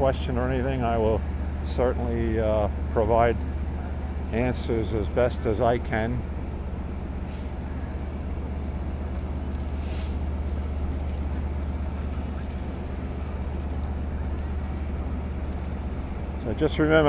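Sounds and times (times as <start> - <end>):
diesel locomotives idling: 0.0 - 17.0
air release hiss: 9.8 - 10.2.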